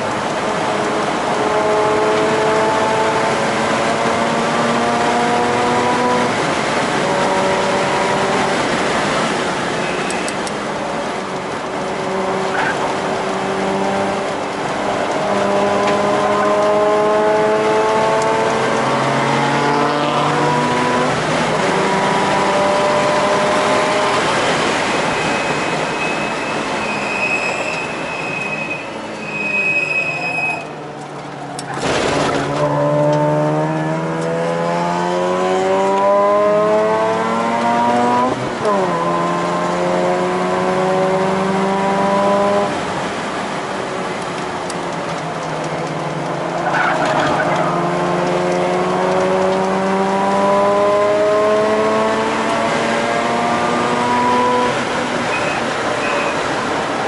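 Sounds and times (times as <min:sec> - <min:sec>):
tyre squeal: 0:09.8 - 0:10.4, 0:25.0 - 0:30.8, 0:46.6 - 0:47.9, 0:55.3 - 0:56.5
rotary engine revving: 0:15.1 - 0:24.8, 0:31.6 - 0:42.7, 0:45.8 - 0:56.1.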